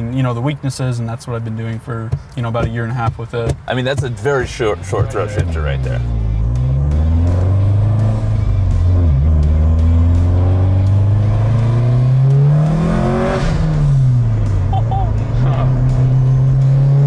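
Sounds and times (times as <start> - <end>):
car engine accelerating: 4.1 - 17.0.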